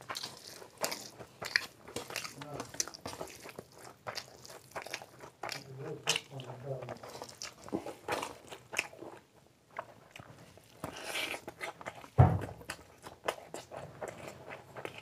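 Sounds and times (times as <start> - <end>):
dull low thump: 12.2 - 12.6.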